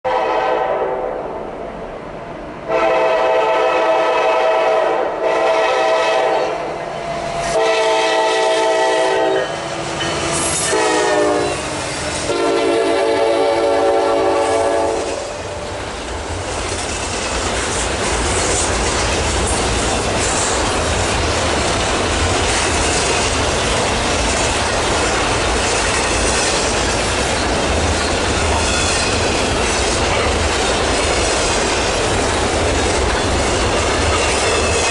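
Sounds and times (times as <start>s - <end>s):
locomotive air horn blasts: 0.1s - 1.0s, 2.7s - 6.7s, 7.5s - 9.6s, 10.6s - 15.5s
train rumbling past: 0.1s - 34.9s
wheels clacking over rail joints: 15.6s - 34.9s.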